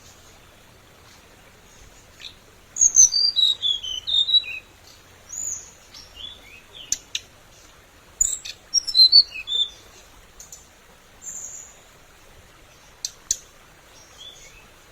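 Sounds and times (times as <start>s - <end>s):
songbird chirping and whistling: 1.7s - 7.3s, 8.2s - 10.6s.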